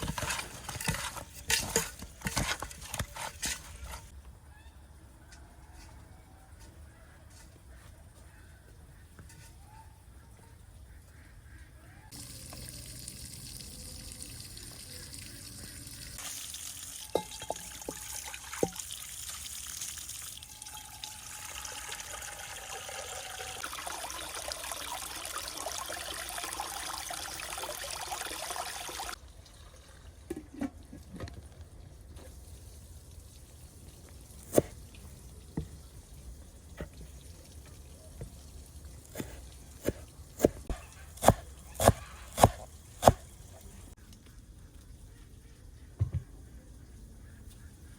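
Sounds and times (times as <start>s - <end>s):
water pouring and splashing: 0.0s - 4.1s, 12.1s - 41.6s.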